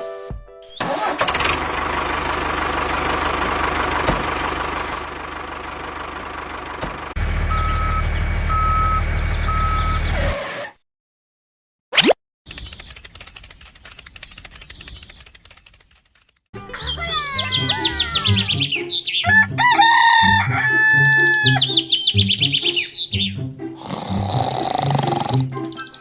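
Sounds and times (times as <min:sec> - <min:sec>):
vehicle engine running: 0:00.8 - 0:10.2
reversing beeps: 0:07.5 - 0:10.3.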